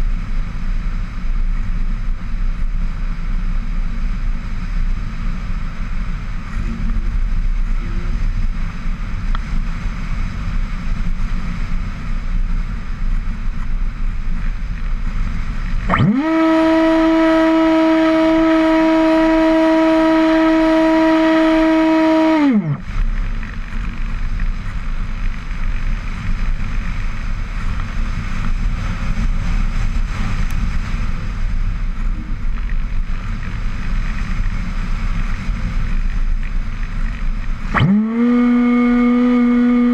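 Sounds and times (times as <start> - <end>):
wind on microphone: 0.0 - 39.9
loud hum swooping in pitch: 15.8 - 23.0, 37.7 - 39.9.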